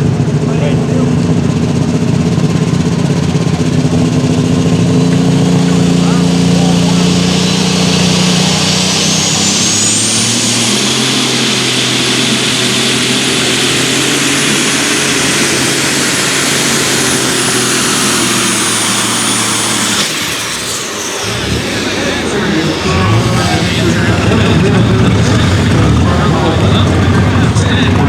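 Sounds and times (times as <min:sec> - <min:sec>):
high turbo whine: 0:00.0 - 0:28.0
tractor diesel engine at full power: 0:00.0 - 0:28.0.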